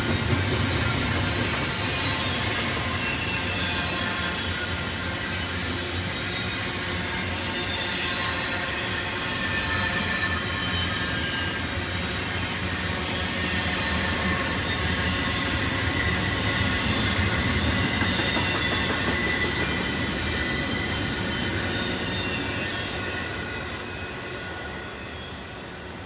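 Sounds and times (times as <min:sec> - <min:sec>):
train wheels rumbling on rail: 0:00.0 - 0:26.0
high-pitched wheel squeal: 0:07.3 - 0:19.7.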